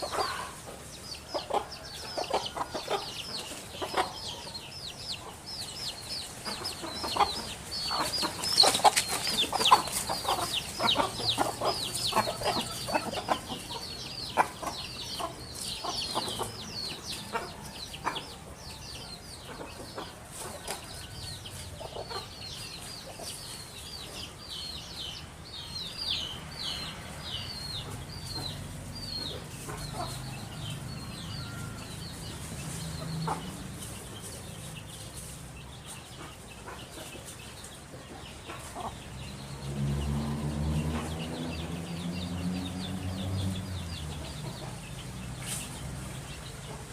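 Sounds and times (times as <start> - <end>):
birds chirping: 0.0 - 46.9.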